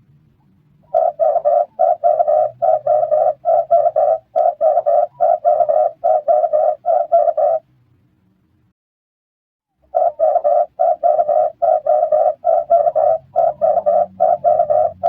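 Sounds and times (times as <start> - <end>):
dove cooing: 0.8 - 7.6, 9.8 - 15.0.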